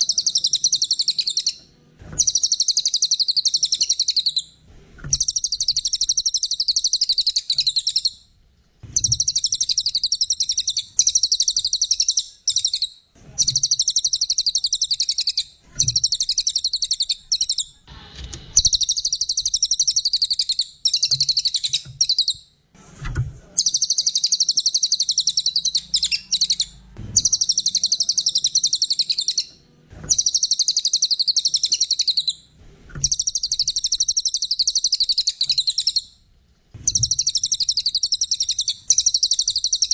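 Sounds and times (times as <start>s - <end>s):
songbird chattering trills: 9.0s - 17.8s, 23.6s - 29.5s, 36.9s - 39.9s.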